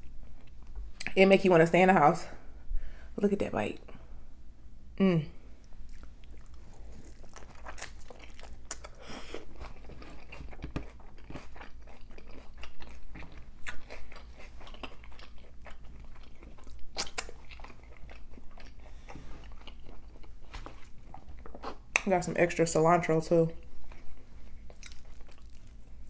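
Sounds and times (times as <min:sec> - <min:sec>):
taco crunching while chewed: 0:05.6 - 0:22.1, 0:23.8 - 0:26.0.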